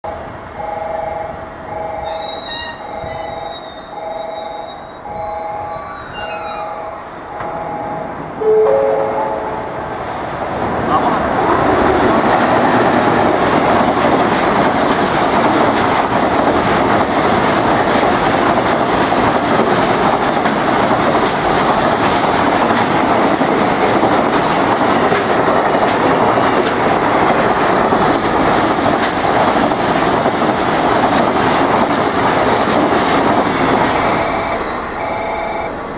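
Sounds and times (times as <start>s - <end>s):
freight train wheels rushing: 0.1s - 8.4s, 9.3s - 35.9s.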